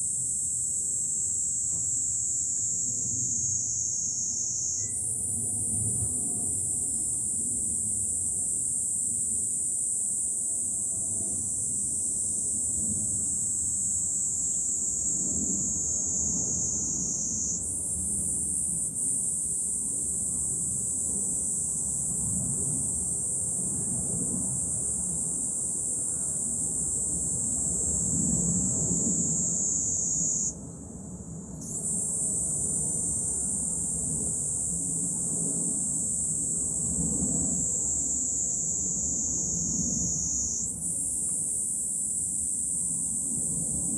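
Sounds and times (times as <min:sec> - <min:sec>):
cicadas shrilling: 0:00.0 - 0:30.5, 0:31.6 - 0:43.9.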